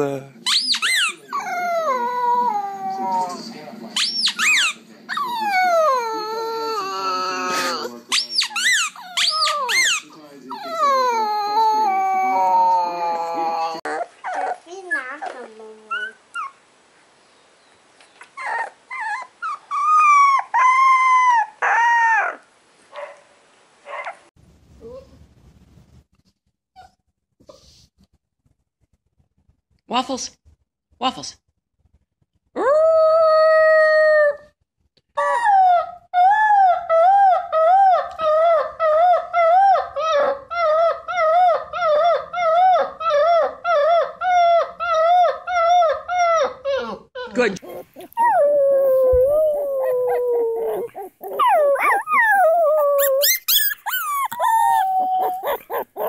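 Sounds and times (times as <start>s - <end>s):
puppy howling: 0.8s - 3.4s, 4.4s - 7.9s, 8.5s - 14.6s, 35.2s - 56.0s.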